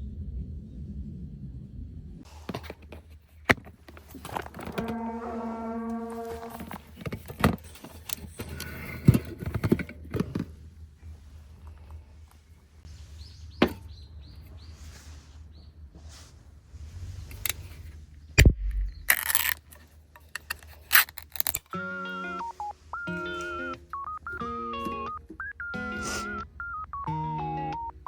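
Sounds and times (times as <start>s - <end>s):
knocks and clunks: 2.5s - 10.7s
heavy low thump: 18.4s - 19.1s.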